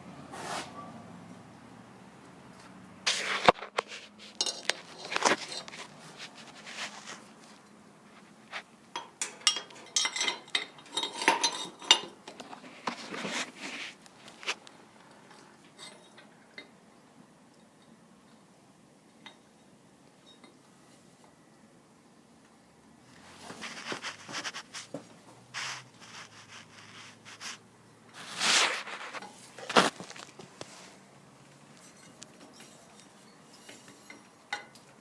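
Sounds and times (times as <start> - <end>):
metal parts clinking and scraping: 3.1 - 6.8, 9.0 - 13.4, 31.7 - 34.8.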